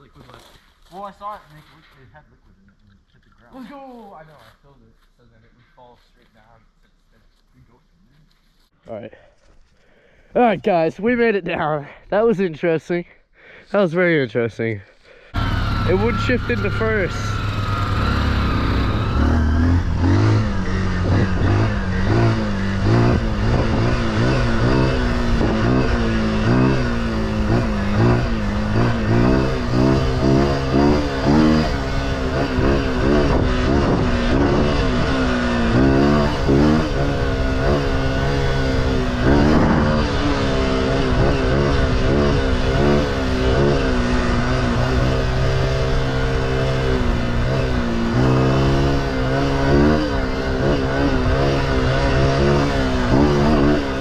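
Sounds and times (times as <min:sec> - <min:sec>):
off-road vehicle engine revving: 0:15.3 - 0:54.0.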